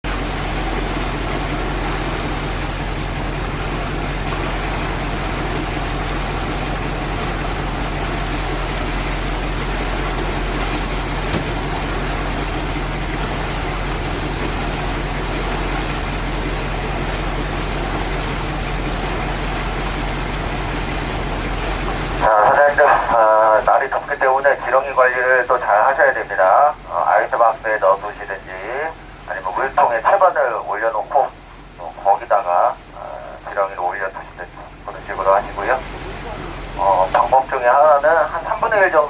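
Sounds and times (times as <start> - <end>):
boat engine droning: 0.0 - 39.0.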